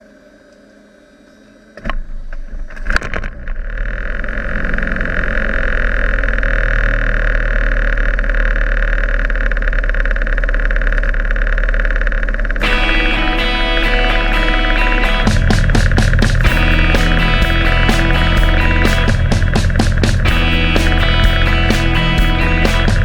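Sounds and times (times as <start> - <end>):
aircraft engine and propeller drone: 8.1 - 23.0.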